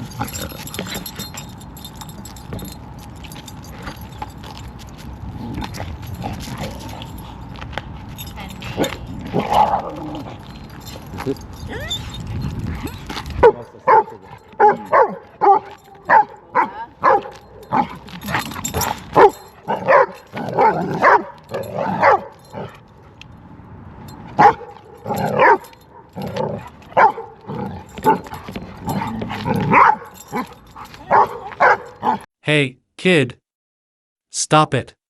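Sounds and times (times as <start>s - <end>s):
dogs barking: 8.2s - 11.4s, 12.8s - 22.8s, 24.3s - 32.2s.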